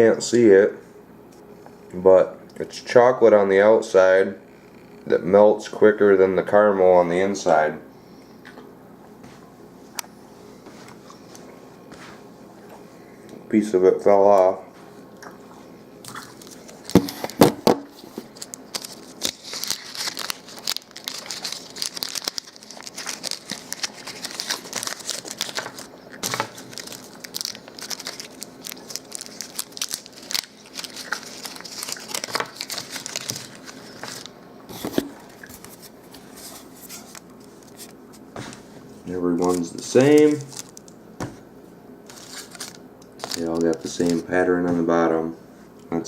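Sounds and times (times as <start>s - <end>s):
candy wrappers crinkling: 16.2s - 36.4s, 39.4s - 41.0s, 42.1s - 44.4s.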